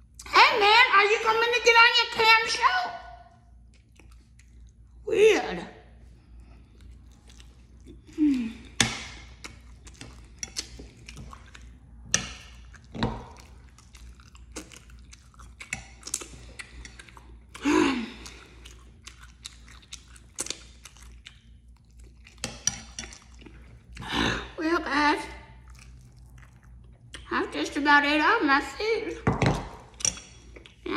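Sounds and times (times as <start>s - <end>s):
chewing and lip-smacking: 3.3s - 5.0s, 6.0s - 24.1s, 25.5s - 27.3s, 29.8s - 30.9s.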